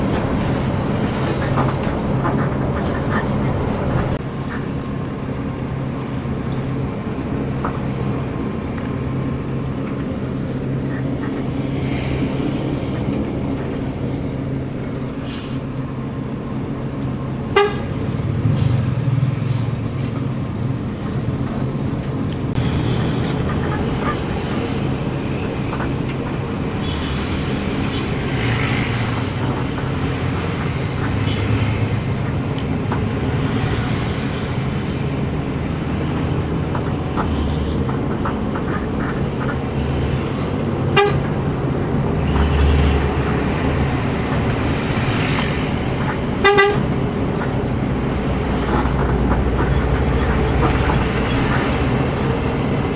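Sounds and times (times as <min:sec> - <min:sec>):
bus engine drone: 0:00.0 - 0:52.9
road noise: 0:00.0 - 0:52.9
horn toot: 0:17.5 - 0:18.8, 0:40.9 - 0:41.2, 0:46.4 - 0:47.0.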